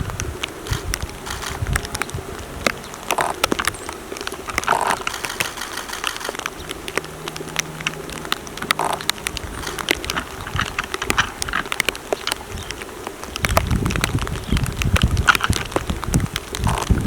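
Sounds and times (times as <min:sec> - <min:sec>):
low steady buzz: 0:00.0 - 0:13.2
raindrops pattering: 0:00.0 - 0:17.0.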